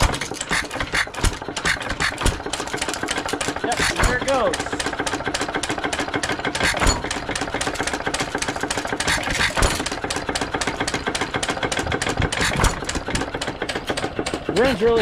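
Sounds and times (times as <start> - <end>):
engine firing thumps: 0.0 - 15.0
stationary gas engine running: 0.0 - 15.0.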